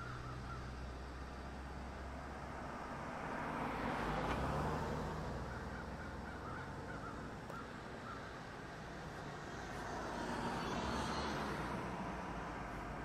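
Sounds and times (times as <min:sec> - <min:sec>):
faint bird calls: 0:00.0 - 0:01.5, 0:05.4 - 0:08.6.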